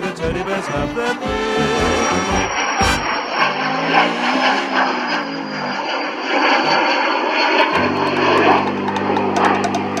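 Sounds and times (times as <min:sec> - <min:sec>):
jet engines on departure: 0:00.0 - 0:10.0
sustained low musical note: 0:00.8 - 0:05.9.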